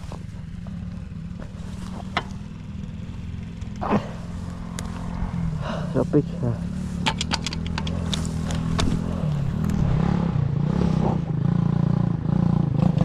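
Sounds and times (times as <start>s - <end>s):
pit bike engine revving: 0.0s - 13.0s
rattling clicks: 1.4s - 2.6s, 7.0s - 9.8s.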